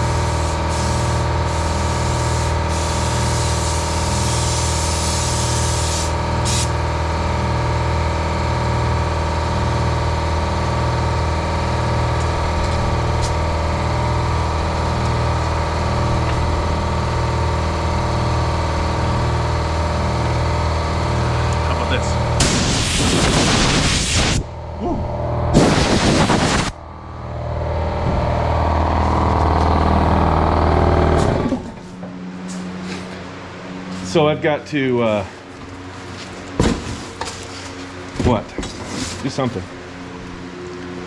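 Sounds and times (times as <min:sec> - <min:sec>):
pressure washer engine droning: 0:00.0 - 0:41.0
water spray hissing: 0:00.2 - 0:06.8.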